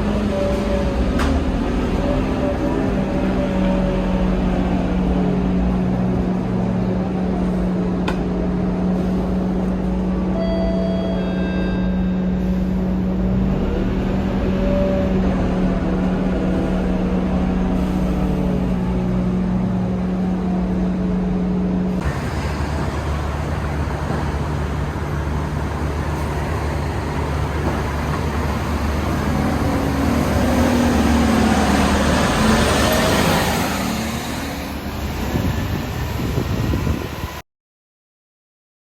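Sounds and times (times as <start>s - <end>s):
bus engine running: 0.0s - 37.4s
road noise: 0.0s - 37.4s.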